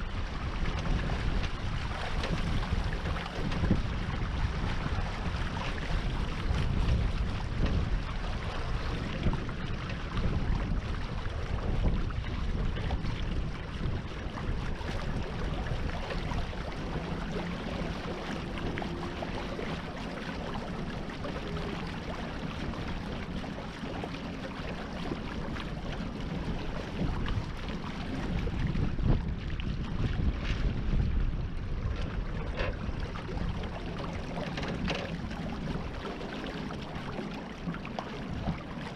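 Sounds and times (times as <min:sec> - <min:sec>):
water rushing along hull: 0:00.0 - 0:38.9
wind buffeting microphone: 0:00.0 - 0:38.9.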